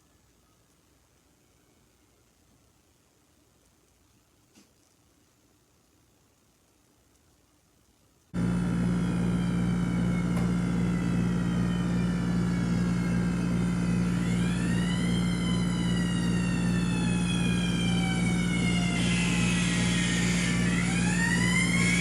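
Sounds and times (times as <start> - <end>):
steady low hum: 8.3 - 22.0.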